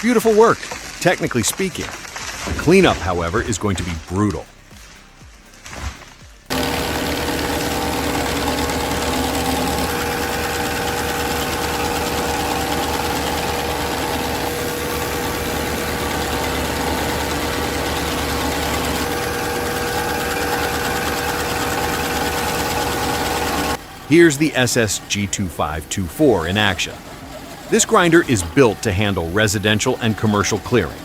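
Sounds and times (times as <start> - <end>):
diesel engine running: 6.4 - 31.0
high whine: 6.5 - 31.0.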